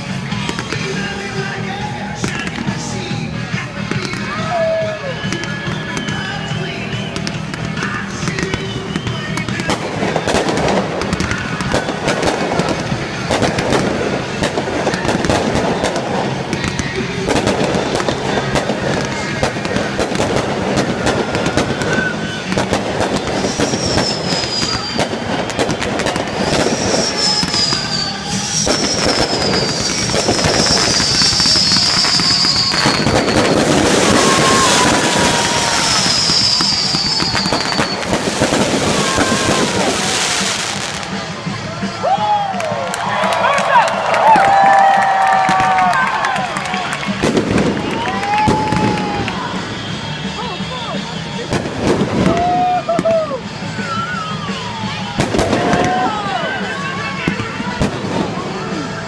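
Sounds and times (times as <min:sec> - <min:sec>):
fireworks bursting and crackling: 0:00.0 - 0:59.0
music playing: 0:00.0 - 0:59.0
high falling whistles: 0:23.2 - 0:41.2.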